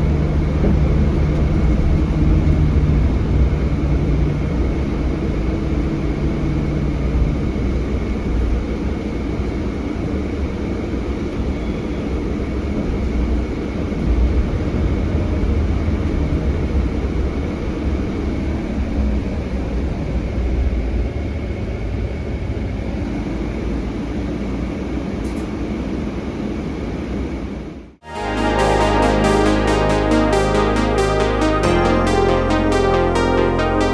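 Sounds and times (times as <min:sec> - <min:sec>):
bus diesel engine rumbling: 0:00.0 - 0:11.2.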